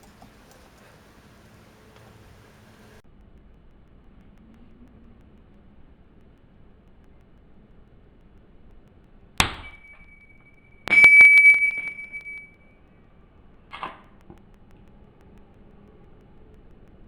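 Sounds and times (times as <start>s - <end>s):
metal tools clinking and ringing: 9.6s - 12.5s.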